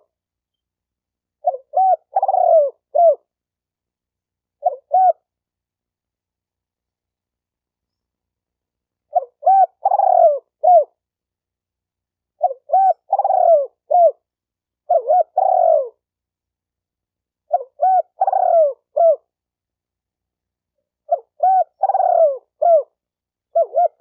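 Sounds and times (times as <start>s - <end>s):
dove cooing: 1.4s - 3.3s, 4.6s - 5.3s, 9.1s - 11.0s, 12.4s - 14.3s, 14.9s - 16.1s, 17.5s - 19.3s, 21.0s - 24.0s.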